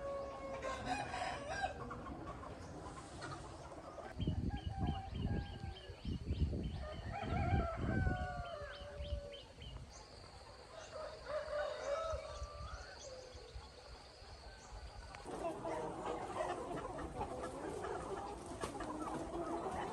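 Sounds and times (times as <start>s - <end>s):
rooster crowing: 0.0s - 1.8s, 6.8s - 9.2s, 10.8s - 13.3s.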